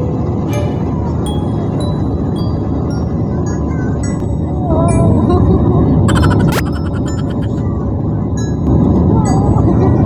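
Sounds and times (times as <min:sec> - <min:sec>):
upward-sweeping tone: 0:00.5 - 0:03.7, 0:06.1 - 0:07.6
sharp clicks: 0:06.1 - 0:07.6.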